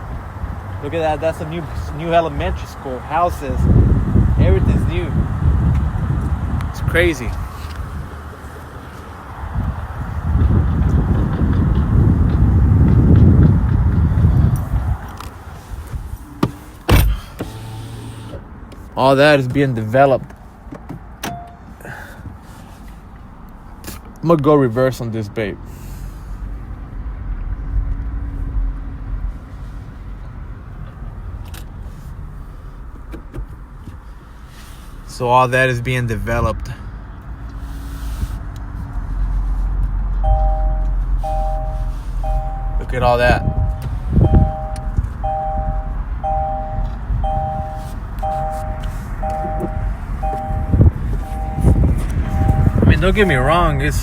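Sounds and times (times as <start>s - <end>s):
motor vehicle rumble: 0.0s - 24.7s, 25.5s - 54.0s
reversing alarm beeping: 40.2s - 53.7s
low rumble: 40.2s - 54.0s.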